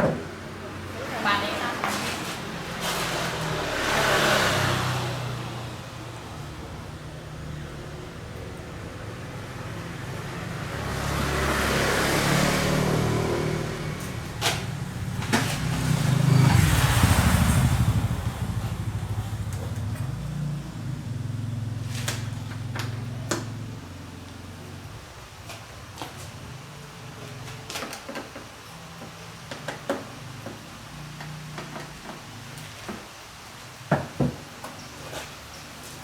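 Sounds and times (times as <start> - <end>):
vehicles passing by: 0.0 - 28.0
low engine hum: 2.6 - 25.2.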